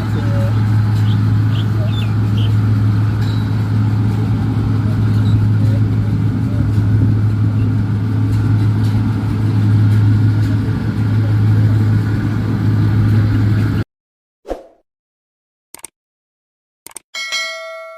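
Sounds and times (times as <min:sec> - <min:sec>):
combine harvester engine hum: 0:00.0 - 0:13.8
short clicks: 0:16.8 - 0:17.1.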